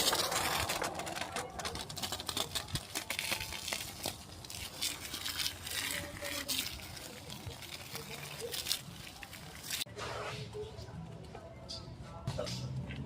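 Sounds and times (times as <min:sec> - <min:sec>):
crinkling and rustling: 0:00.0 - 0:09.9.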